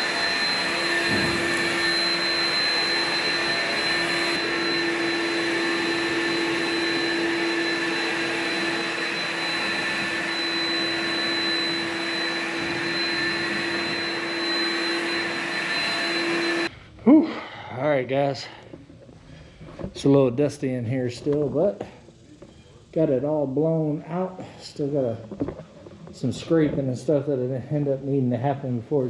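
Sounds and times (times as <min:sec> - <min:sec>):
blower motor whine: 0:00.0 - 0:16.9.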